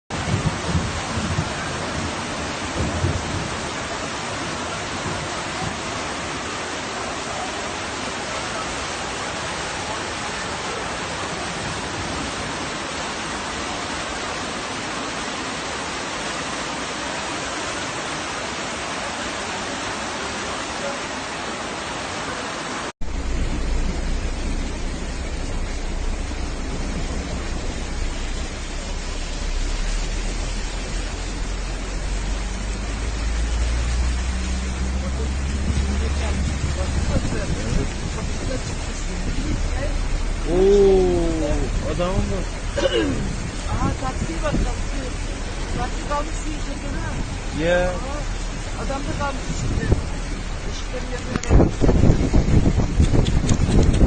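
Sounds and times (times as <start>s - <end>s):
heavy rain: 0.1s - 54.0s
running water: 0.1s - 54.0s
low rumble: 23.0s - 54.0s.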